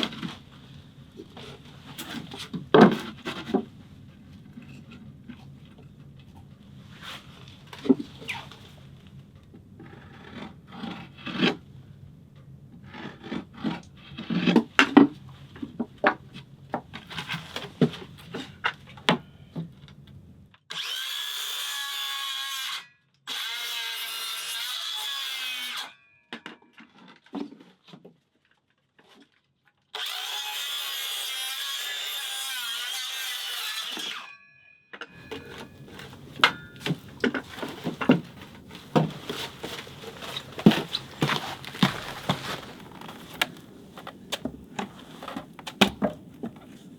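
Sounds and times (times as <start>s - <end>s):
wood knocking and clattering: 35.2s - 46.9s.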